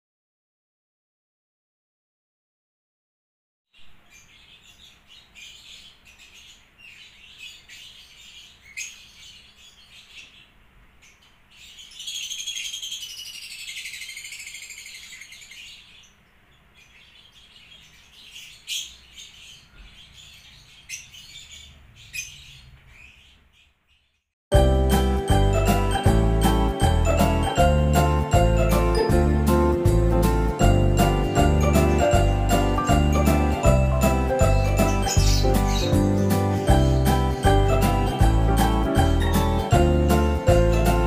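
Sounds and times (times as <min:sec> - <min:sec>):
small birds chirping: 0:03.8 - 0:26.0, 0:30.2 - 0:41.0.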